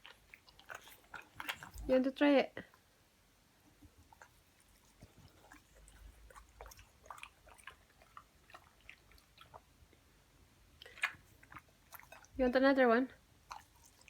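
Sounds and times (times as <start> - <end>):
dog chewing fruit: 0.0 - 2.0, 3.8 - 9.8, 10.8 - 12.5, 13.4 - 14.0.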